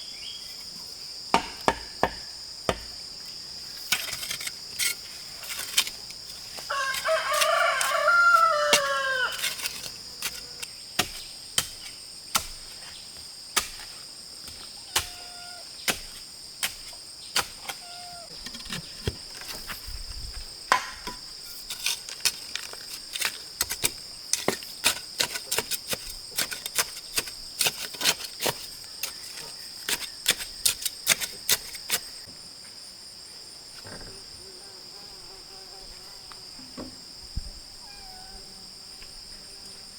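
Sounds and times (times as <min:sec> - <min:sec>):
insects chirring: 0:00.0 - 0:39.9
sharp knocks: 0:01.4 - 0:03.0
rooster crowing: 0:06.7 - 0:09.8.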